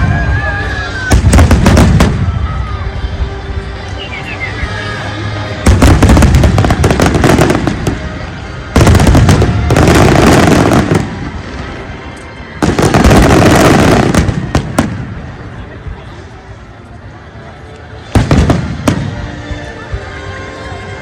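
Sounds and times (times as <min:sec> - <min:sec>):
fireworks bangs and crackling: 0:00.0 - 0:02.8, 0:05.6 - 0:16.0, 0:18.0 - 0:19.5.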